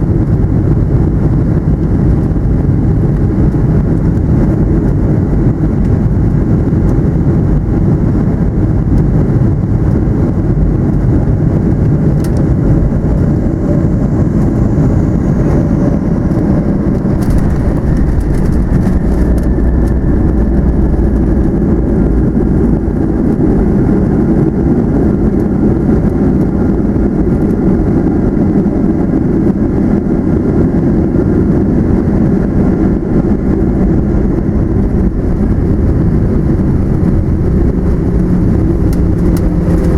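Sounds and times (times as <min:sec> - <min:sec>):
jet engines roaring: 0:00.0 - 0:39.9
rushing air: 0:11.5 - 0:25.1, 0:31.6 - 0:39.9.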